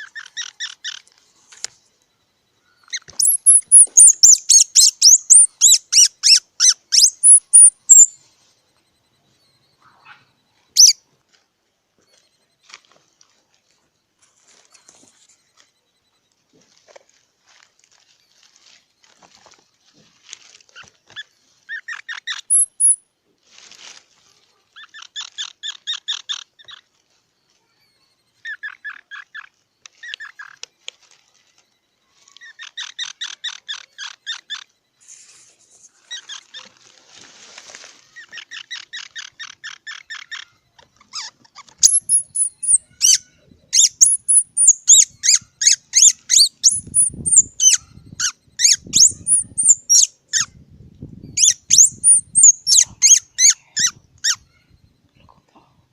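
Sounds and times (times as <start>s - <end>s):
squirrel chattering chirps: 0.0s - 1.1s, 2.8s - 8.2s, 9.8s - 11.0s, 20.8s - 23.0s, 24.8s - 26.9s, 28.4s - 30.6s, 38.2s - 50.5s, 51.3s - 54.6s
squirrel high-pitched squeaks: 0.0s - 1.1s, 2.6s - 8.2s, 9.4s - 11.1s, 20.2s - 23.0s, 24.4s - 37.1s, 37.7s - 50.6s, 51.2s - 54.8s.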